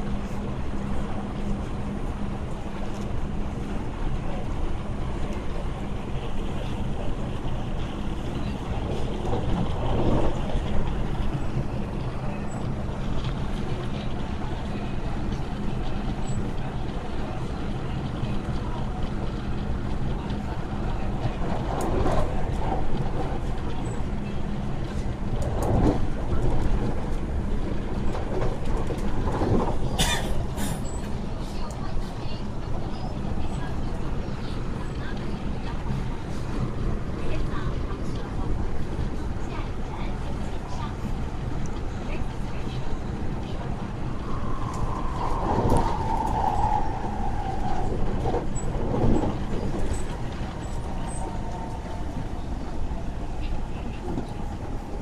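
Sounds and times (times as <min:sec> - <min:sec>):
train wheels rumbling on rails: 0:00.0 - 0:55.0
high train motor whine: 0:41.6 - 0:55.0.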